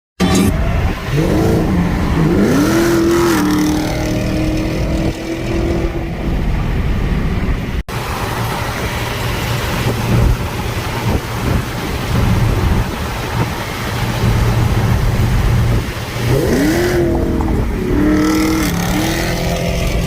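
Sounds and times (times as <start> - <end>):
car engine revving: 0.2 - 6.4, 8.1 - 20.0
rough engine and road noise: 0.2 - 20.0.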